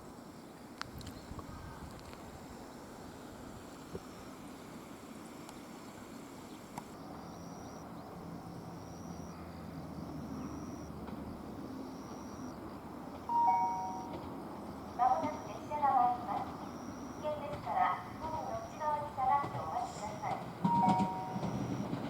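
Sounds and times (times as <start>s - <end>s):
insects chirping: 0.0s - 22.0s
two-tone electronic chime: 10.2s - 10.9s, 11.9s - 12.6s, 13.3s - 14.2s, 20.0s - 22.0s.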